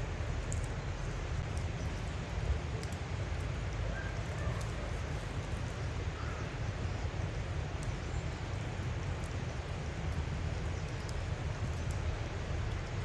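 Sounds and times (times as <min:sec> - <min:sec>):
outdoor low rumble: 0:00.0 - 0:13.0.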